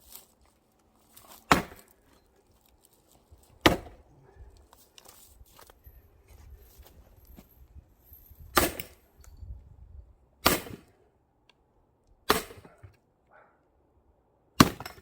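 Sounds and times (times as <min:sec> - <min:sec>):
axe splitting log: 0:01.2 - 0:02.1, 0:03.5 - 0:04.1, 0:08.6 - 0:09.0, 0:10.4 - 0:10.9, 0:12.3 - 0:13.0, 0:14.6 - 0:15.0.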